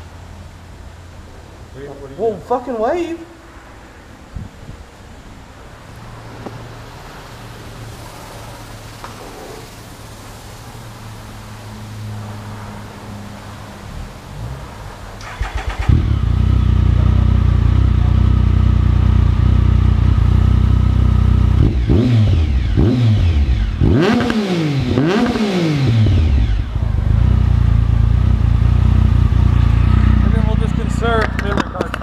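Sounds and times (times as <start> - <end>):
motorcycle engine idling and revving: 6.0 - 32.0
motorcycle engine cranking: 15.2 - 16.4.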